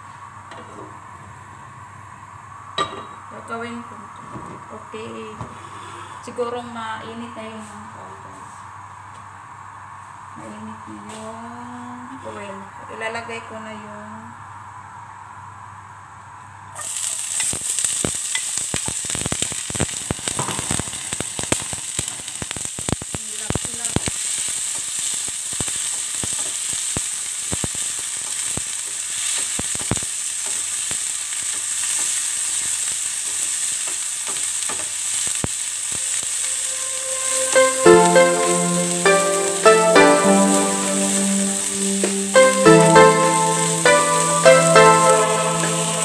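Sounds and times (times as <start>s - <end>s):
vegetables sizzling in hot oil: 16.8s - 46.0s.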